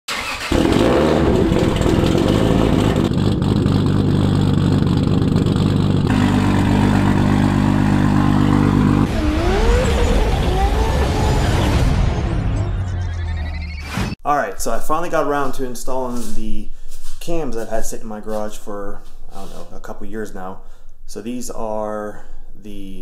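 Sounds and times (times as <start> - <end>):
car engine idling: 0.2 - 9.9.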